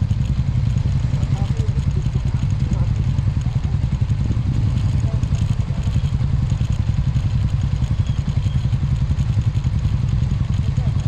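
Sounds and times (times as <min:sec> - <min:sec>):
road noise: 0:00.0 - 0:11.0
scooter engine: 0:00.0 - 0:11.0
wind buffeting microphone: 0:04.1 - 0:05.3.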